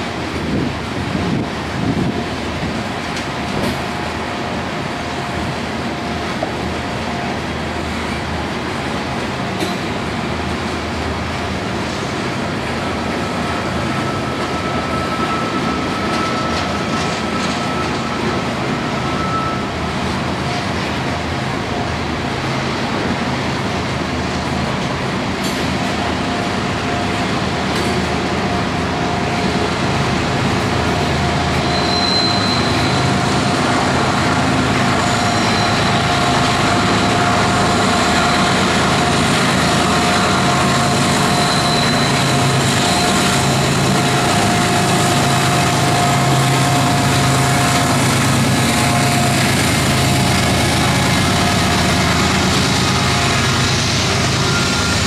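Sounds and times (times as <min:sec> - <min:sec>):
diesel locomotive hum: 0:00.0 - 0:55.0
freight train rolling on rails: 0:00.0 - 0:55.0
wheel whine: 0:29.0 - 0:55.0.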